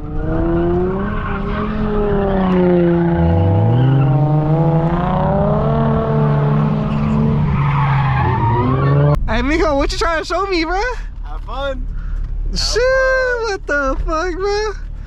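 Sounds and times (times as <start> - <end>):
car engines running hard: 0.0 - 15.0
tyres squealing: 0.7 - 4.4.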